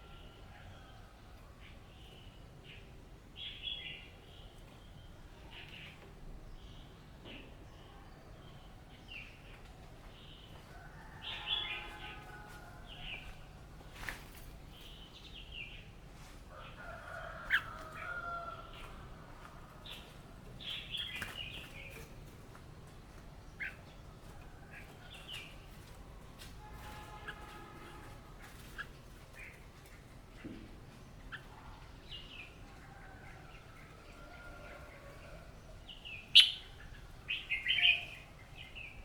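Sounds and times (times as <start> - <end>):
bird singing bright phrases: 35.8 - 39.0
longer lower bird calls: 36.2 - 38.3.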